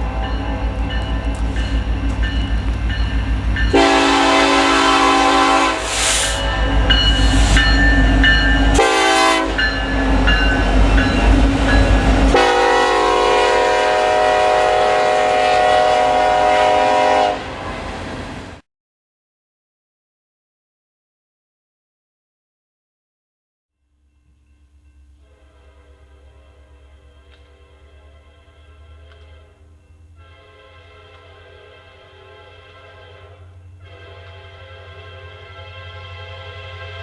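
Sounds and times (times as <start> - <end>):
locomotive air horn blasts: 0.0 - 1.5, 3.7 - 10.0, 12.1 - 17.9, 25.2 - 37.0
diesel locomotive rumbling: 0.0 - 18.6, 23.8 - 37.0.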